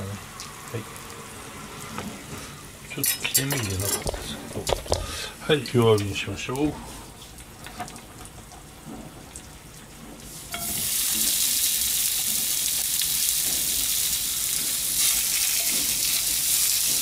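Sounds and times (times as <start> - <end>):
sausages sizzling in a frying pan: 10.3 - 17.0.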